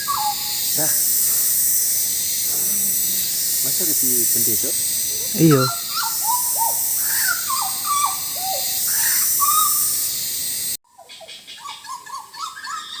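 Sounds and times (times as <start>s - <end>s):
bird fluting whistled song: 0.0s - 0.6s, 5.4s - 10.0s, 10.9s - 13.0s
steady high hiss: 0.0s - 10.8s.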